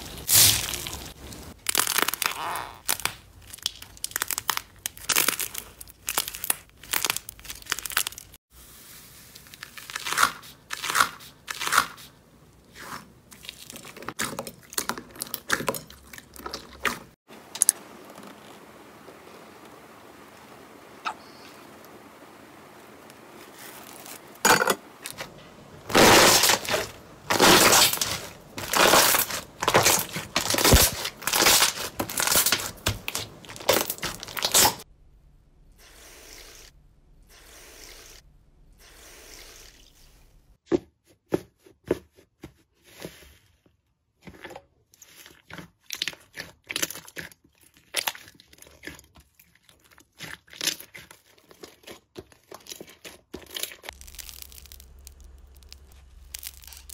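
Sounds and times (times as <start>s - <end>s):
slime crackling and crunching: 0.0s - 8.4s, 9.3s - 12.1s, 25.9s - 34.9s, 45.0s - 56.9s.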